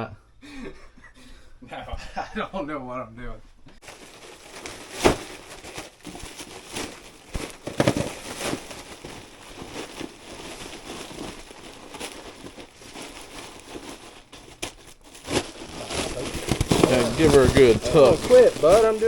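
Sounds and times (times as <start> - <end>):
plastic duct jacket crinkling: 3.8 - 19.0.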